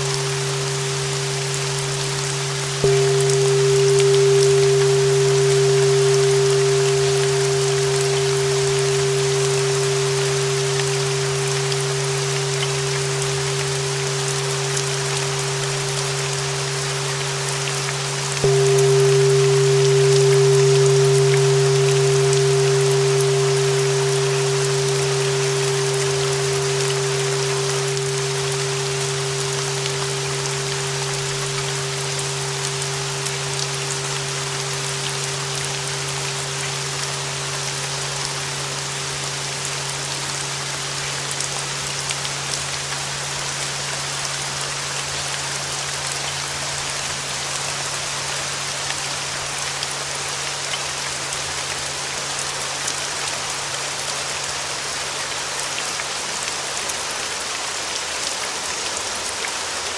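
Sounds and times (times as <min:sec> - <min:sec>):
ringing bell tone: 0:00.0 - 0:42.1
low steady hum: 0:00.0 - 0:48.3
steady rain: 0:00.0 - 0:59.9.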